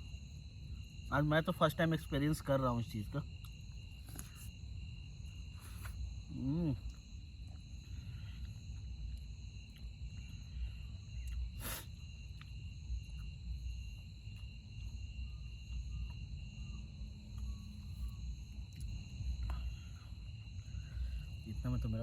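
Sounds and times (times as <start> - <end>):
crickets chirring: 0.0 - 22.0.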